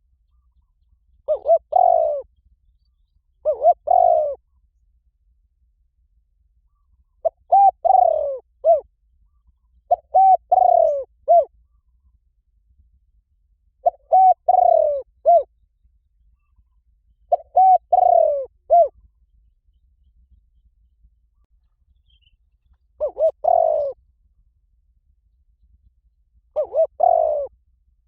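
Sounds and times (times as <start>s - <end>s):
dove cooing: 1.2s - 2.3s, 3.4s - 4.5s, 6.7s - 11.9s, 13.8s - 15.5s, 17.3s - 19.1s, 23.0s - 24.0s, 26.6s - 27.6s.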